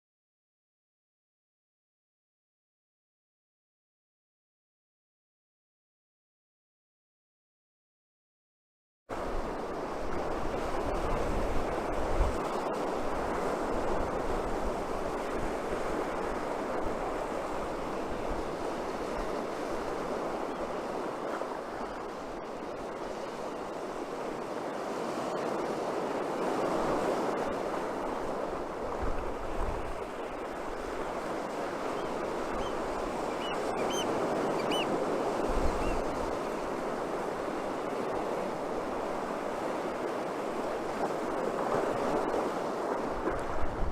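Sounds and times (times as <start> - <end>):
surf breaking on beach: 9.1 - 43.9
wind buffeting microphone: 26.0 - 43.9.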